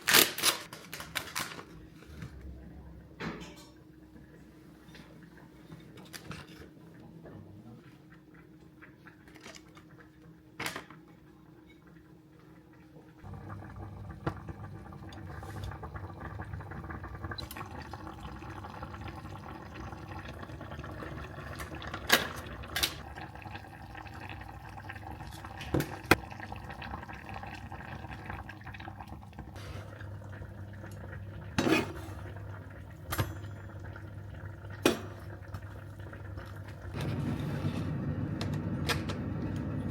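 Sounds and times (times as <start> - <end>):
dishes and utensils clinking: 3.2 - 3.8
water running from kitchen tap: 13.2 - 39.9.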